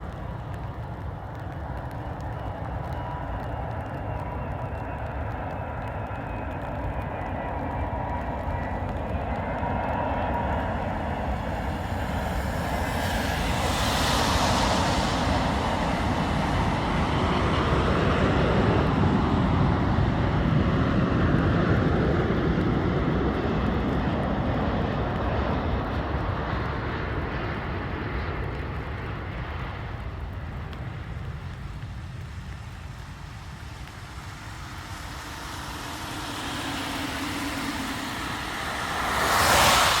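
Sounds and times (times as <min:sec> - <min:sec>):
jet plane passing overhead: 0:00.0 - 0:40.0
loud rush of noise: 0:32.6 - 0:40.0.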